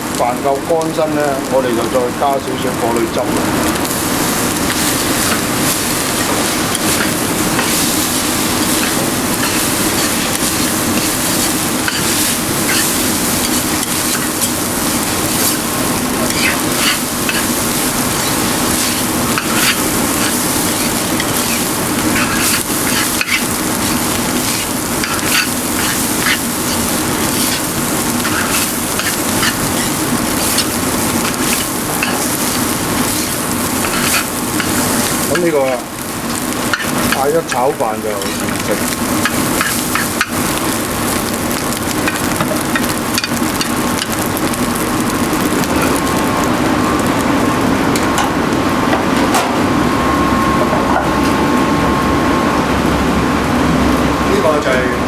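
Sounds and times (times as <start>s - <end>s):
rice sizzling in a wok: 0.0s - 55.0s
utensil scraping a wok: 4.1s - 40.8s.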